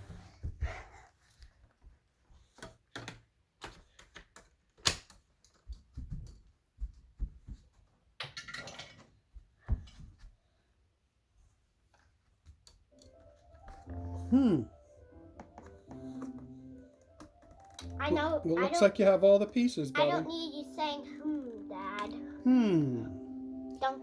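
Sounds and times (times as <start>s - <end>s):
plastic parts clicking and knocking: 2.4s - 6.5s.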